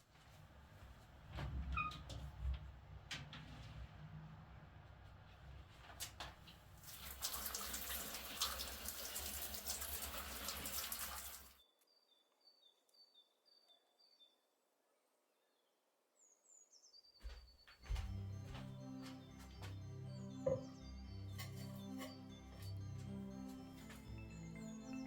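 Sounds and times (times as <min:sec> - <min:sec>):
water running from a tap: 0:06.8 - 0:11.6
bird chirping: 0:11.6 - 0:14.6, 0:20.0 - 0:22.9.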